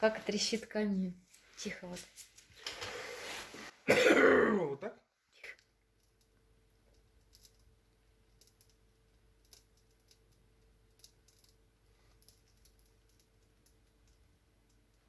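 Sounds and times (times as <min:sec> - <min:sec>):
sharp snaps and pops: 0:05.4 - 0:15.0
wood fire crackling: 0:05.4 - 0:15.0.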